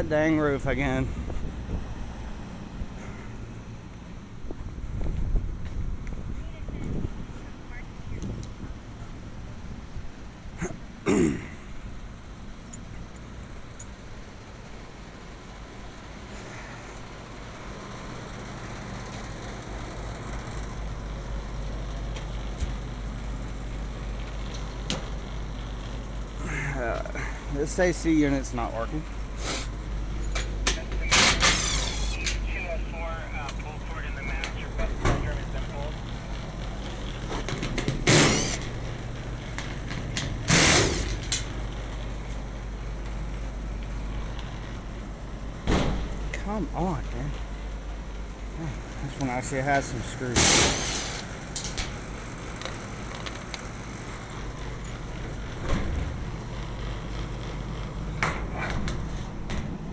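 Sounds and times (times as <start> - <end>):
hvac fans humming: 0.0 - 59.9
short loud noisy bursts: 31.0 - 32.7, 38.0 - 38.8, 40.4 - 41.3, 50.3 - 51.4.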